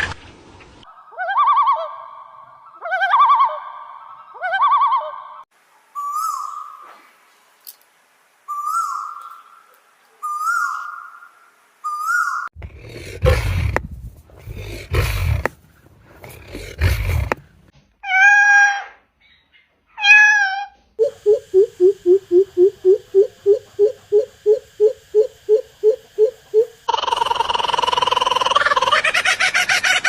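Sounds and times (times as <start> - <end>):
steady bird call: 8.5 - 12.6, 21.0 - 30.0
wavering meow-like bird cries: 18.0 - 19.1, 19.9 - 20.8
harsh rasping bird calls: 21.0 - 30.0.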